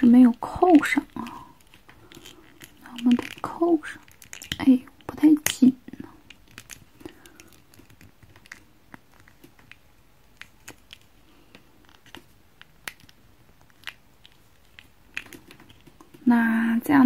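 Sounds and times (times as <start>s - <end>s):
plastic toy parts clicking: 0.7s - 11.1s.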